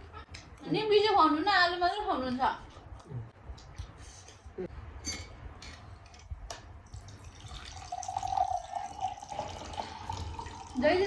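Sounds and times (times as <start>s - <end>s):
water pouring into a vessel: 7.0s - 11.0s.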